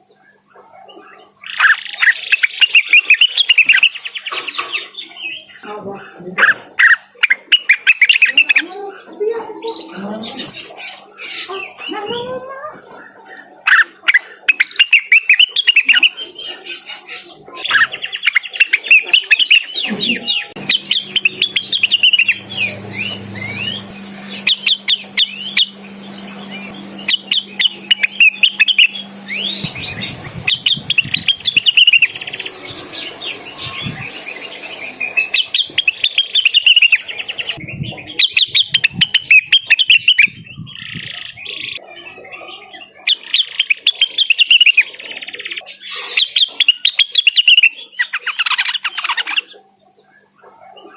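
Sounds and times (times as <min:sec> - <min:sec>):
bird singing fast chirps: 0:14.3 - 0:41.8.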